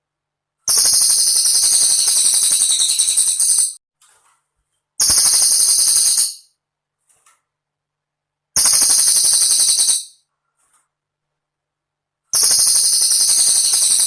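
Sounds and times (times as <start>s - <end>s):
bird rattling trills: 0.7s - 3.8s, 5.0s - 6.5s, 8.6s - 10.2s, 12.4s - 14.0s.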